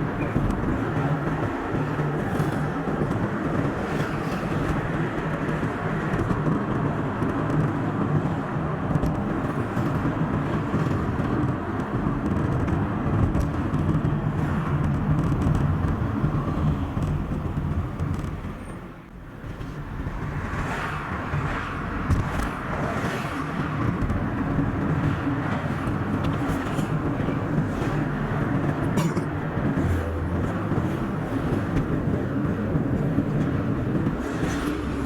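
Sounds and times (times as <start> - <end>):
tyres rumbling on road: 0.0 - 35.0
car engine: 9.1 - 35.0.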